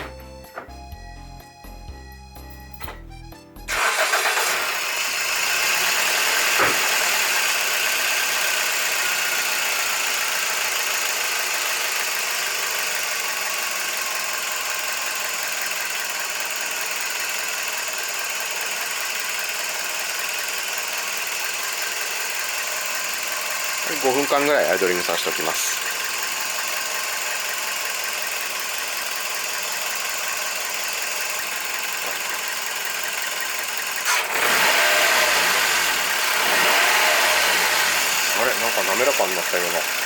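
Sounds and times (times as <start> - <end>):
music: 0.0 - 4.0
car engine starting and idling: 2.6 - 40.0.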